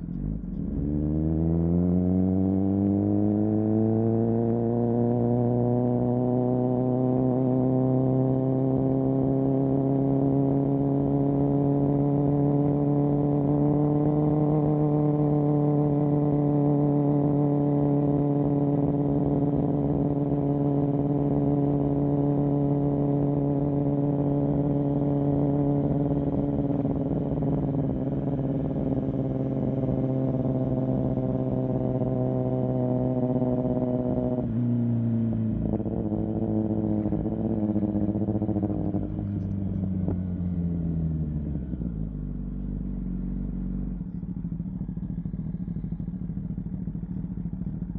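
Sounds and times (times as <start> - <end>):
motorcycle engine at cruising revs: 0.0 - 47.9.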